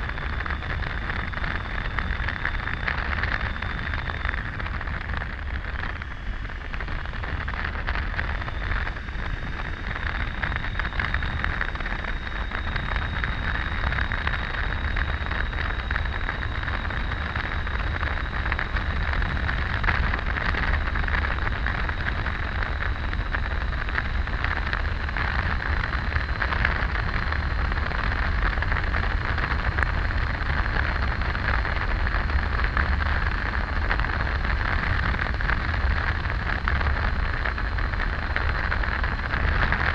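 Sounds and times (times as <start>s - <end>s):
motorcycle riding noise: 0.0s - 39.9s
wind buffeting microphone: 0.0s - 39.9s.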